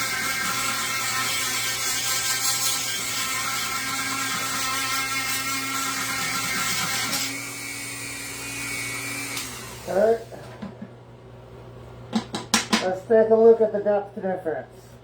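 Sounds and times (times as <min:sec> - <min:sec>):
power tool whining on wood: 0:00.0 - 0:10.4.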